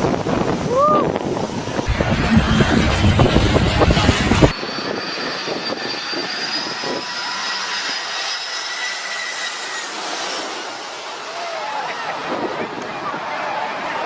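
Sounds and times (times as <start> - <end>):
deep jet engine rumble: 0.6 - 7.5
jet engine whine with high tones: 1.4 - 12.3.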